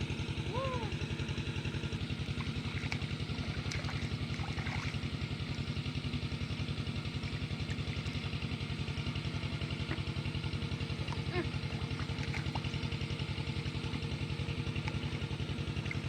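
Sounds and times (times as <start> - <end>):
small engine thudding steadily: 0.0 - 16.0.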